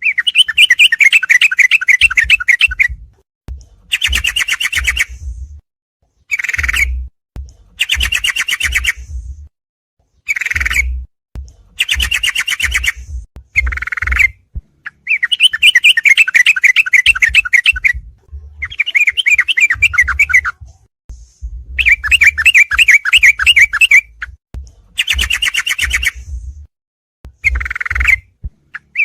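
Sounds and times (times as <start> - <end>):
bird chattering song: 0.0 - 2.9, 3.9 - 5.2, 6.3 - 7.0, 7.8 - 9.1, 10.2 - 11.0, 11.8 - 18.0, 18.6 - 20.6, 21.8 - 24.4, 25.0 - 26.2, 27.4 - 29.0
low rumble: 5.1 - 5.6, 9.0 - 9.5.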